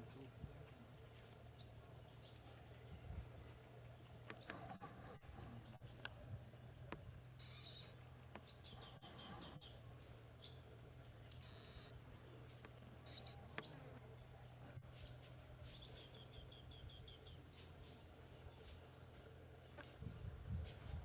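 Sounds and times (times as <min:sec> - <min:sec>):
steady low hum: 0:00.0 - 0:21.0
bird chirps: 0:07.4 - 0:09.8, 0:10.4 - 0:14.9, 0:15.7 - 0:19.4.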